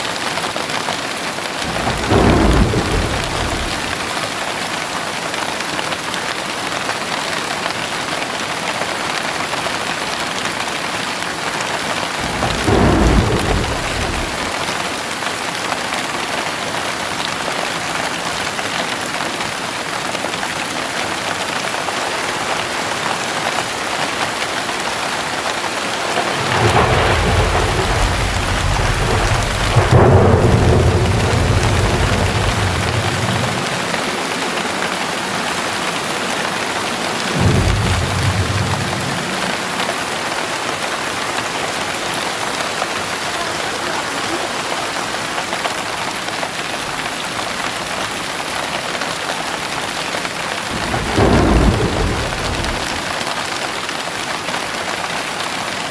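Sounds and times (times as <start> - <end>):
heavy rain pouring: 0.0 - 55.9
thunder clap: 1.6 - 4.8, 11.8 - 15.4, 22.2 - 43.4, 50.6 - 53.4
thunder rumbling: 1.6 - 4.8, 12.0 - 15.2, 22.3 - 43.3, 50.6 - 53.4.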